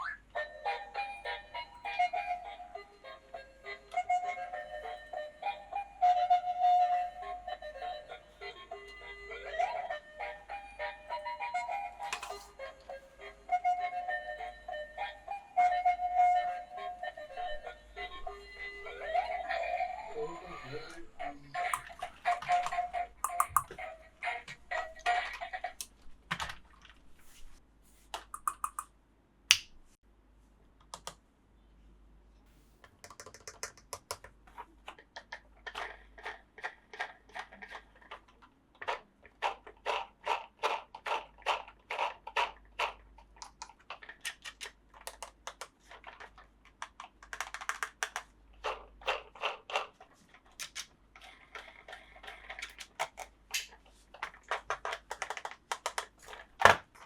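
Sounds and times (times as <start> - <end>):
plastic toy parts clicking: 12.1 - 12.5, 20.8 - 26.6, 28.2 - 28.9, 32.9 - 57.0.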